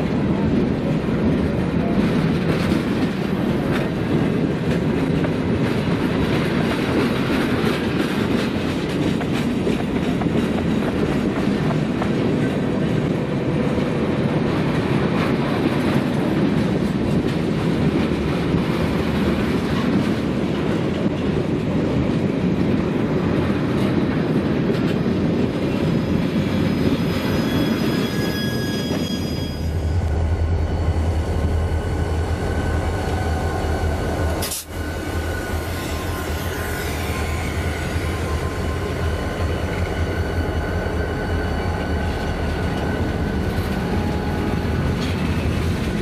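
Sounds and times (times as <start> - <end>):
clickety-clack over rail joints: 0.0 - 29.1, 31.7 - 46.0
train wheels rumbling on rails: 0.0 - 46.0
wheel squeals: 26.5 - 30.0.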